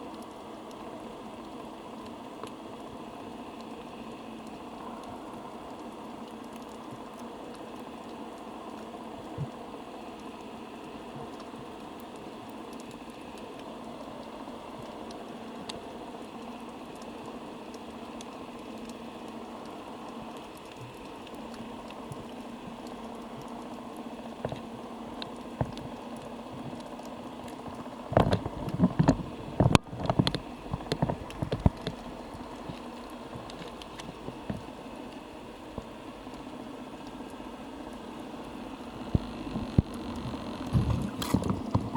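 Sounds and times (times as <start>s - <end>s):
small clicks underwater: 0.0s - 41.9s
underwater hiss and murmur: 0.0s - 41.9s
rushing water: 25.7s - 41.9s.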